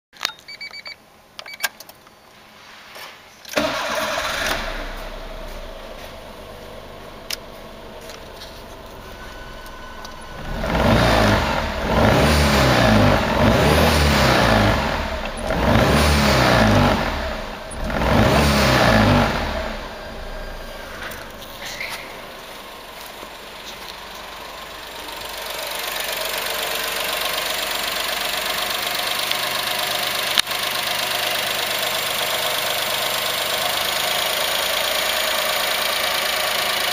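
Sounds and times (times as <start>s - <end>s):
ignition clicks: 3.5s - 5.8s, 7.2s - 11.3s
car engine starting and revving: 3.5s - 36.9s.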